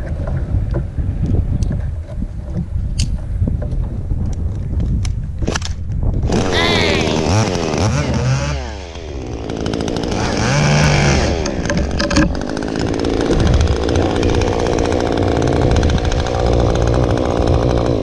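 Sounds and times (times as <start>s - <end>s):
chainsaw revving: 6.2s - 18.0s.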